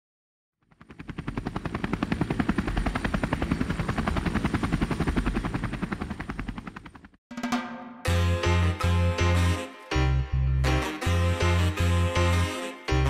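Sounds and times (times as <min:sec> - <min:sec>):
helicopter rotor blades chopping: 0:00.6 - 0:07.2.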